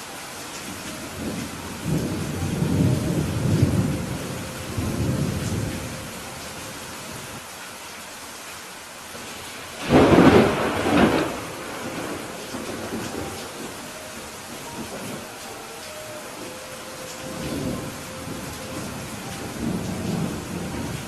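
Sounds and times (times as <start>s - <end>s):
rain hissing: 0.0s - 21.0s
thunder rumbling: 0.7s - 7.4s, 9.8s - 21.0s
loud thunderclap: 9.8s - 13.8s.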